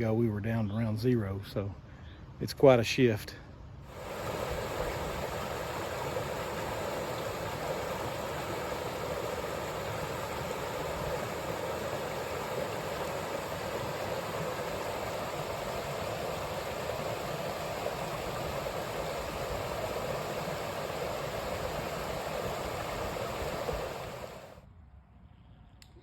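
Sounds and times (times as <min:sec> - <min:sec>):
creek water rushing: 0:03.9 - 0:24.6.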